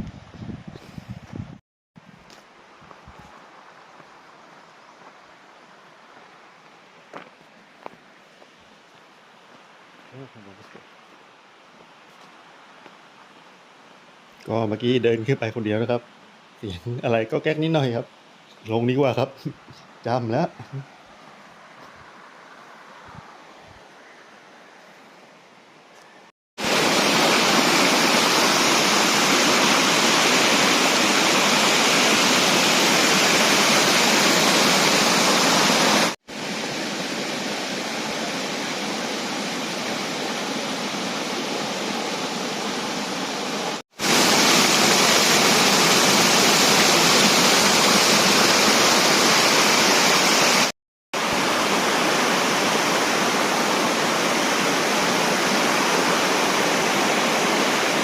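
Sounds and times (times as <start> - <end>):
waterfall rushing over rock: 26.6 - 58.0.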